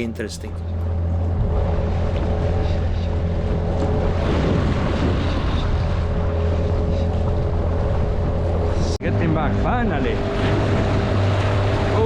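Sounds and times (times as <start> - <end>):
outboard motor humming: 0.0 - 12.0
wind: 0.0 - 12.0
water rushing: 9.5 - 12.0.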